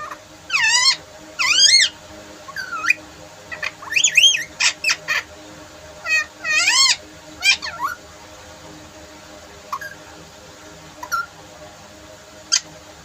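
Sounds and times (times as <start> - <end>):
parrot calling: 0.0 - 5.3, 6.0 - 8.0, 9.7 - 10.1, 11.0 - 11.3, 12.5 - 12.7.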